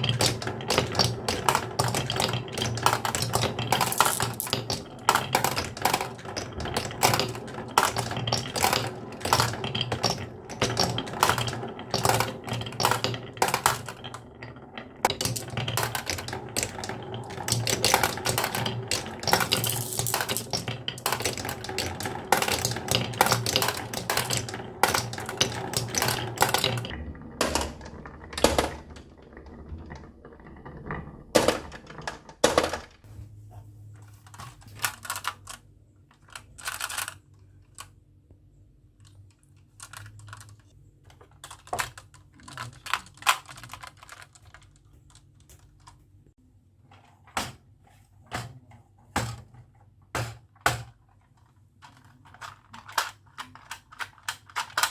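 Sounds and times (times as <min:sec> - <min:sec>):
marbles clicking down wooden track: 0:00.0 - 0:33.1, 0:51.9 - 0:54.9.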